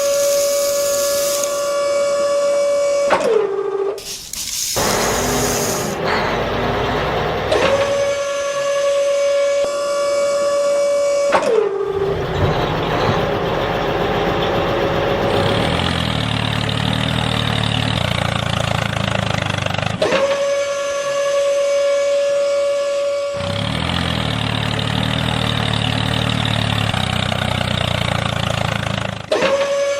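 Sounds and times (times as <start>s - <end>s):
electric motor whining: 0.0s - 1.7s, 4.8s - 8.2s
rough noisy churning: 4.8s - 8.2s.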